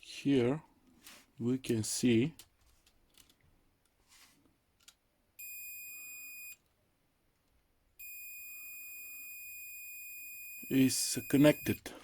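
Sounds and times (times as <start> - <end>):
continuity tester beeping: 5.4 - 6.6, 8.0 - 11.9.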